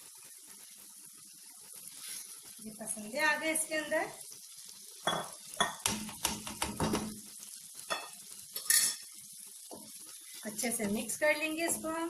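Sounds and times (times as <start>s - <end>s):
chicken sizzling in oil: 0.0s - 12.0s
spoon scraping metal pan: 7.9s - 9.1s.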